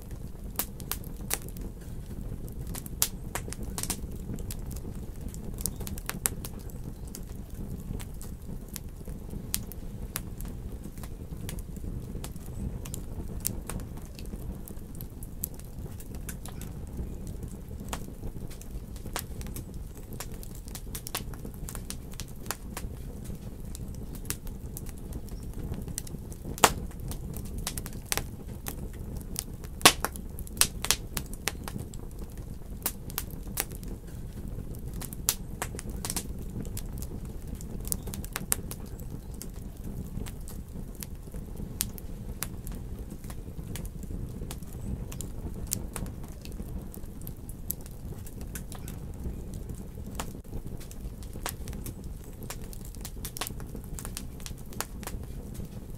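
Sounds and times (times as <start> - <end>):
low rumble of flames: 0.0 - 55.9
wood fire crackling and popping: 0.0 - 55.9.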